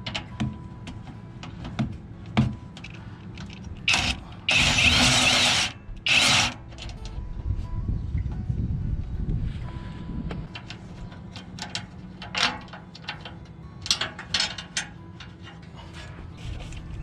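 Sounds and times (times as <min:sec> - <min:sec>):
power tool bursts: 0:03.9 - 0:06.6
clicks and clanks of hardware: 0:10.5 - 0:15.6.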